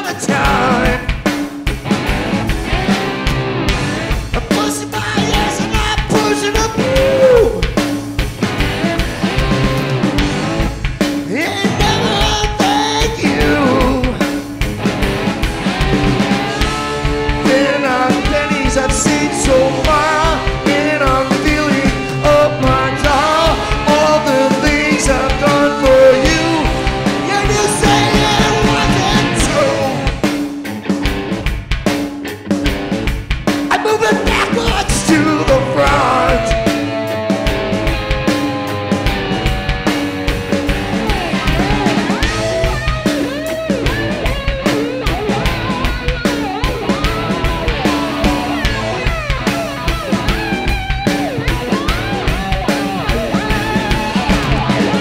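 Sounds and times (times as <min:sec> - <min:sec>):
person singing: 0:00.0 - 0:01.2, 0:04.4 - 0:07.8, 0:11.2 - 0:14.5, 0:16.5 - 0:30.3, 0:33.7 - 0:38.5
drums steady beat: 0:00.0 - 0:55.0
guitars: 0:00.0 - 0:55.0.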